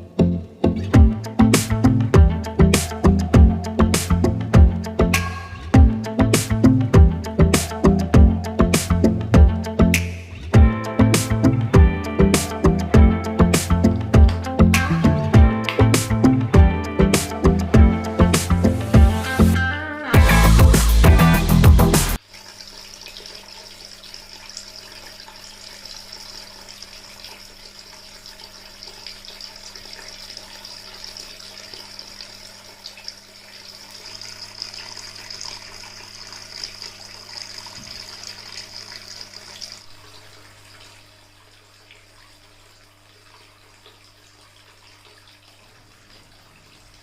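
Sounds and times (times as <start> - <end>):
low steady hum: 0.0 - 19.2
water dripping: 0.7 - 19.3, 22.2 - 47.0
water trickling in fountain: 22.2 - 47.0.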